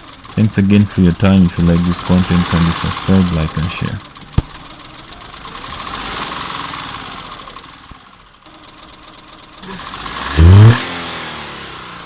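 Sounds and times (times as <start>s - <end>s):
car engine knocking: 0.0s - 12.0s.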